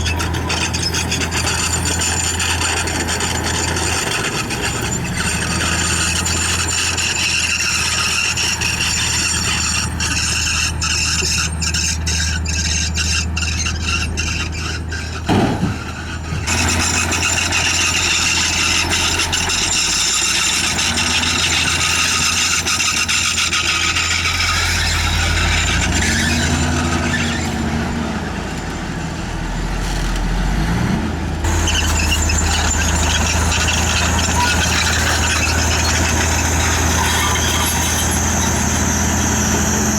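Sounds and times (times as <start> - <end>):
high-pitched squeal of running gear: 0.0 - 28.4, 31.5 - 39.9
bulldozer diesel engine hum: 0.0 - 39.9
loud jolt: 15.2 - 17.7.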